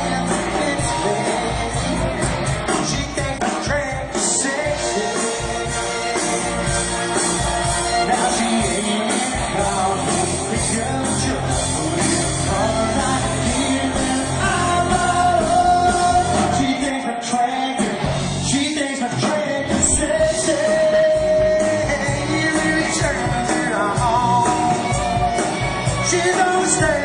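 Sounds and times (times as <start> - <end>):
live country band playing: 0.0 - 27.0
person singing lead vocal: 0.0 - 27.0.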